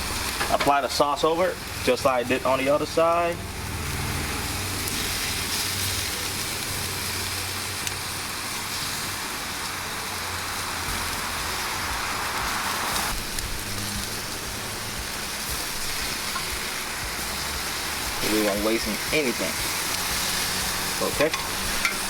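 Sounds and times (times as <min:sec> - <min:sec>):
fish sizzling on a grill: 0:00.0 - 0:22.0.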